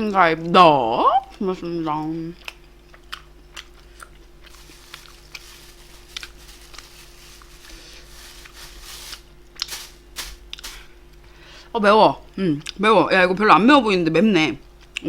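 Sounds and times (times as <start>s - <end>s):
faint steady hum: 0.0s - 13.4s
person chewing food: 2.4s - 5.0s.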